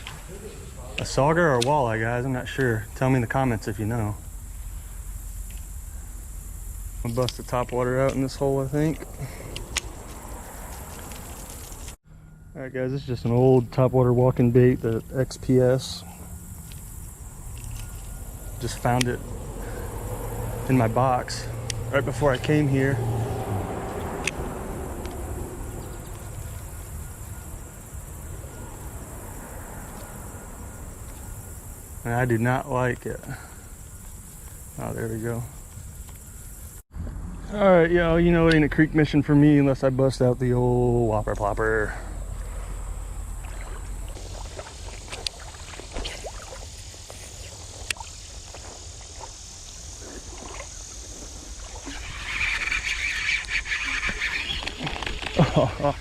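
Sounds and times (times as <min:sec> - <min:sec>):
high-pitched insect chorus: 0:00.0 - 0:36.8, 0:37.5 - 0:56.0
water sloshing and gurgling: 0:42.4 - 0:55.6
water splashing: 0:43.1 - 0:56.0.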